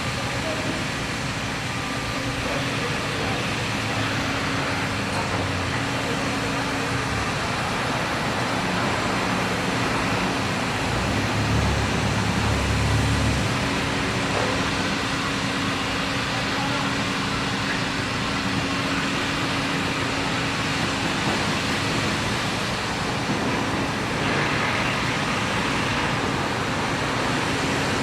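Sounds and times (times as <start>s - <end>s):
city traffic noise: 0.0s - 28.0s.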